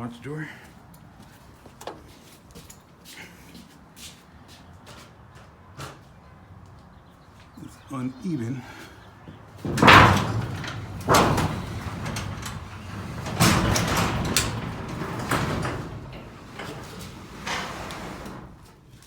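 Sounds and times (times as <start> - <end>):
garage door rattling down tracks: 9.3 - 18.9
loud clunks of garage door: 9.3 - 18.9.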